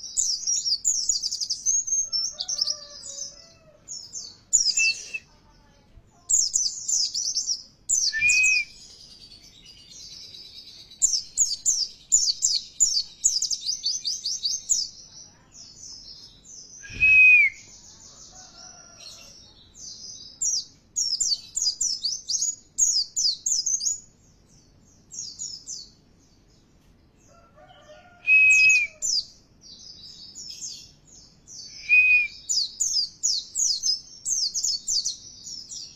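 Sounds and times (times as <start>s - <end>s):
single whistled bird notes: 8.0s - 8.8s, 16.8s - 17.7s, 28.2s - 29.0s, 31.7s - 32.7s.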